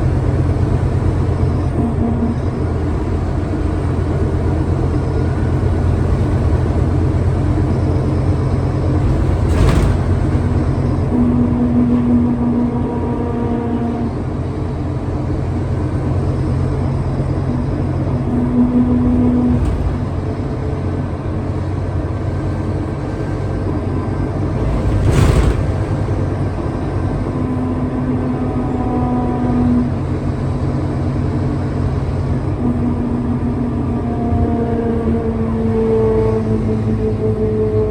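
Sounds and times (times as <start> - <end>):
bus diesel engine rumble: 0.0 - 37.9
thump: 9.0 - 10.7, 19.4 - 20.4, 24.6 - 26.4.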